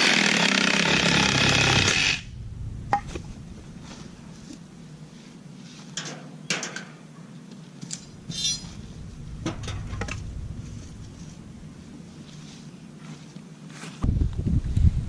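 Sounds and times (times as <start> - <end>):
low rumble: 1.0 - 5.3, 8.0 - 12.6
rustling scrape: 1.8 - 6.0, 8.0 - 14.1
sharp clinks and knocks: 7.9 - 11.2.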